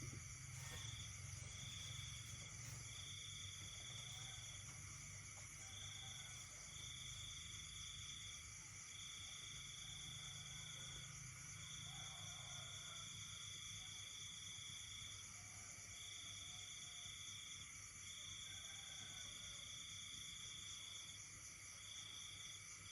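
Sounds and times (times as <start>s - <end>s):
faint low frog calls: 0.0s - 8.4s.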